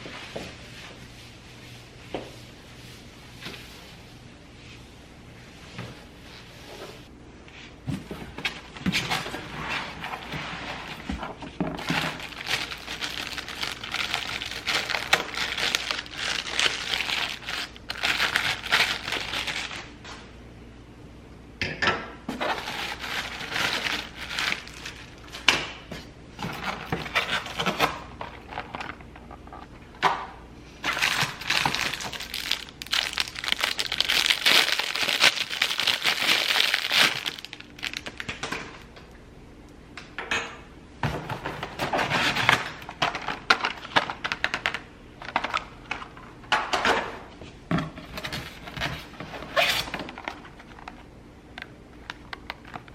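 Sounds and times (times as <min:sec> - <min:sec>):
packaging crinkling: 0:11.8 - 0:20.0, 0:22.4 - 0:25.5, 0:30.8 - 0:38.5.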